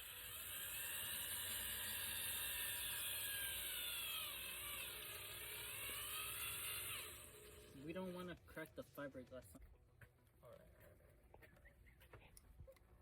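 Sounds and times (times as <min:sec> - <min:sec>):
power drill boring into fiberglass: 0:00.0 - 0:08.3.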